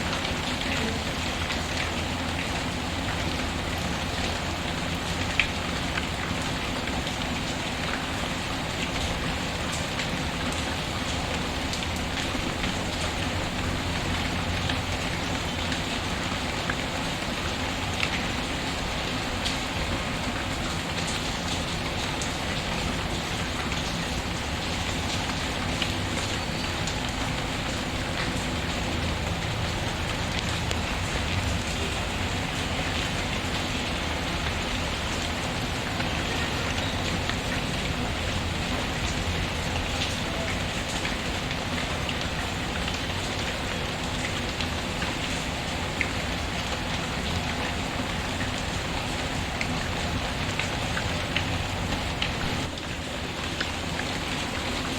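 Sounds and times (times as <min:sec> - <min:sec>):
rain falling on a surface: 0:00.0 - 0:54.9.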